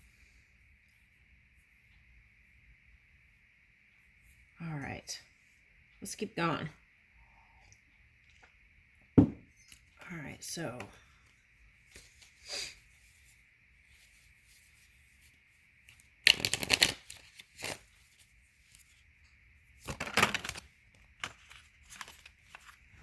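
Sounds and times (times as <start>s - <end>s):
cards being shuffled: 16.2s - 17.9s, 21.2s - 22.9s.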